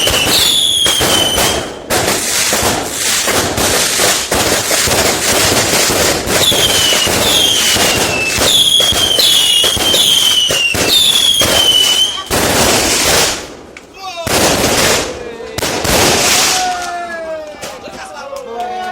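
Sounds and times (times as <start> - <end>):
whistling firework shots: 0.0 - 13.5
fireworks crackling bangs: 0.0 - 18.2.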